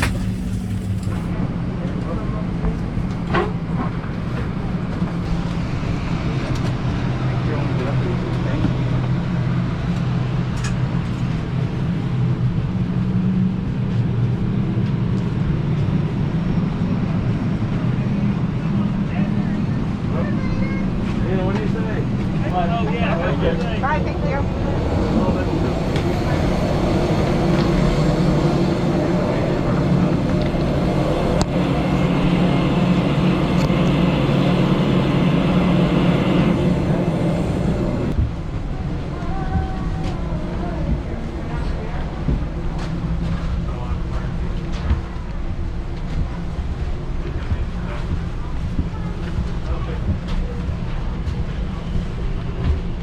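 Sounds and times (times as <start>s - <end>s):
aircraft cabin hum: 0.0s - 1.4s, 23.6s - 53.0s
low mechanical drone: 0.0s - 53.0s.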